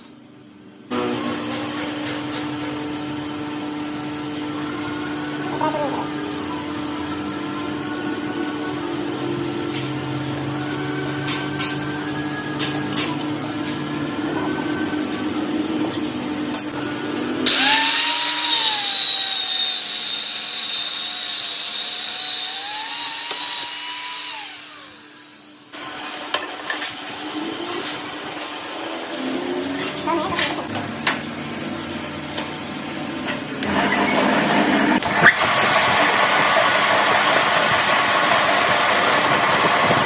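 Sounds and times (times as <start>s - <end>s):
power tool whining: 17.1s - 25.8s.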